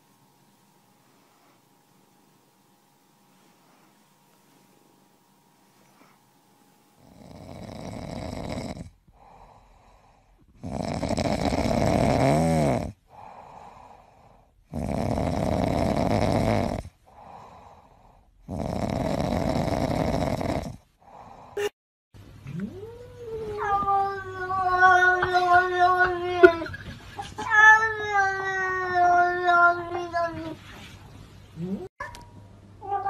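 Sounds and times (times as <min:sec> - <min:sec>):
cat purring loudly: 0:07.0 - 0:09.0, 0:10.6 - 0:13.0, 0:14.7 - 0:16.9, 0:18.5 - 0:20.8.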